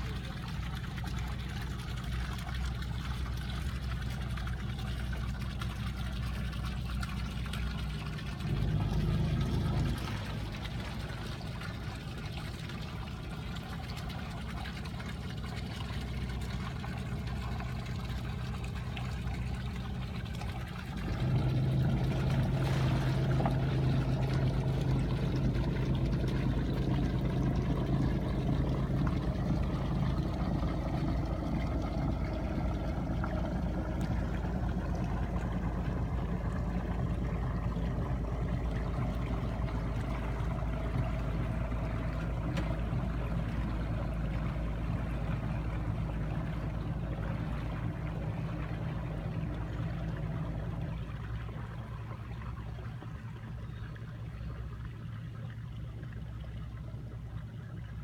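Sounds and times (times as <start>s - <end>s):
boat engine running: 0.0s - 58.0s
water noise: 0.0s - 58.0s.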